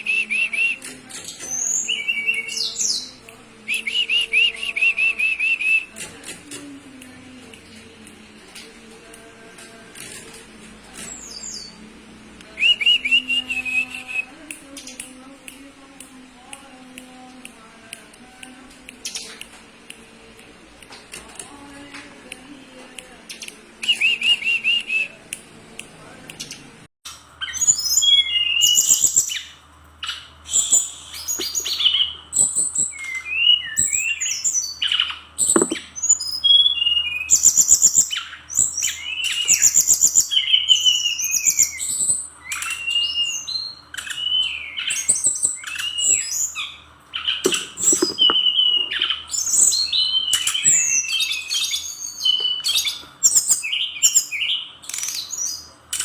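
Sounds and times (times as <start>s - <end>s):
faint steady hum: 0.0s - 56.0s
bird singing chirps and trills: 27.4s - 55.7s.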